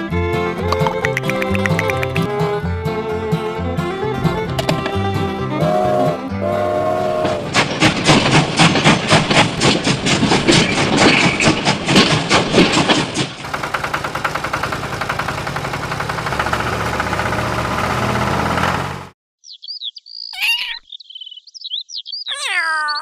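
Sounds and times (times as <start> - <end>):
music with a steady beat: 0.7 - 2.4
engine running: 13.3 - 19.2.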